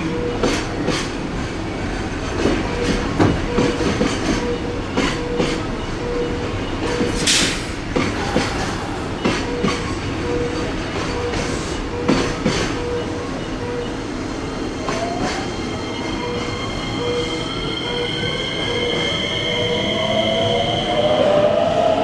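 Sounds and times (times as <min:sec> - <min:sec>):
train wheels clicking over rail joints: 0:02.2 - 0:10.0.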